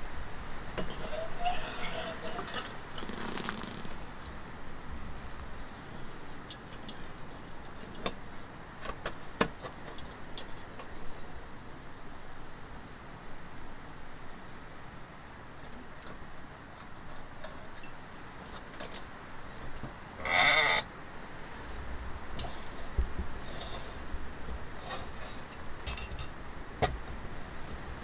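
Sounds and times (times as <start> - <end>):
bleat-like animal call: 20.2 - 20.9.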